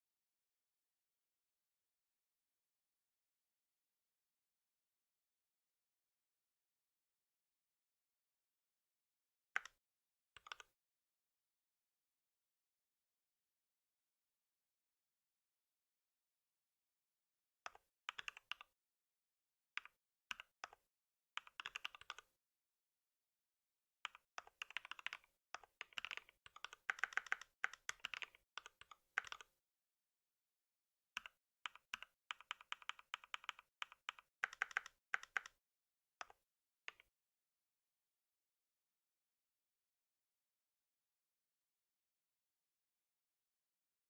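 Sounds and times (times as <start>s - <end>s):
keyboard typing: 10.4s - 10.7s, 17.7s - 18.6s, 21.4s - 22.3s, 24.1s - 29.5s, 31.2s - 35.6s.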